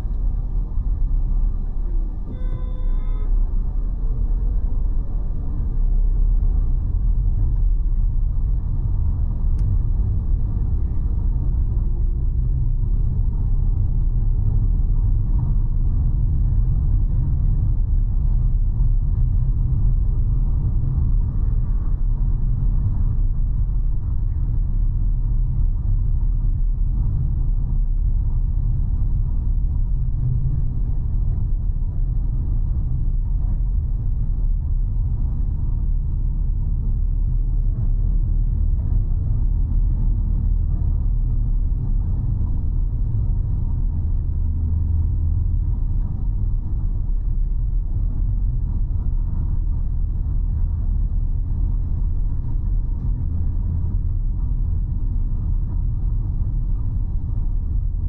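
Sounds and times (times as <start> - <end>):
car driving on road: 0.0 - 58.0.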